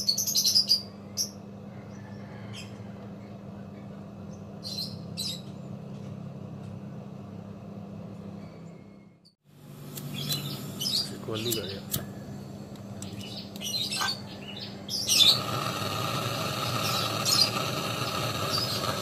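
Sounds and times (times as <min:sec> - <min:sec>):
small birds chirping: 0:00.0 - 0:05.8, 0:10.0 - 0:12.3, 0:13.0 - 0:15.7
steady low hum: 0:00.0 - 0:19.0.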